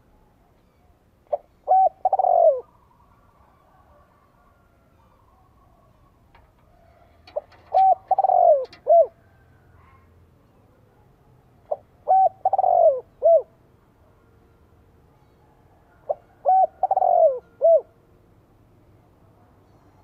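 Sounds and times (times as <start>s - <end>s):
dove cooing: 1.3s - 10.0s, 11.7s - 13.6s, 16.0s - 18.0s.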